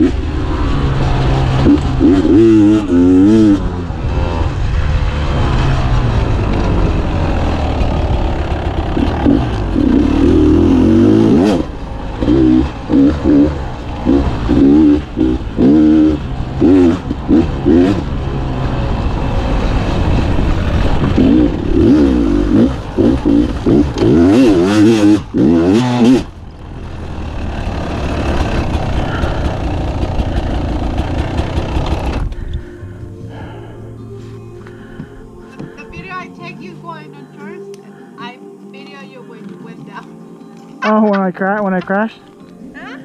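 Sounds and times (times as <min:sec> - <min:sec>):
dirt bike engine revving: 0:00.0 - 0:32.5.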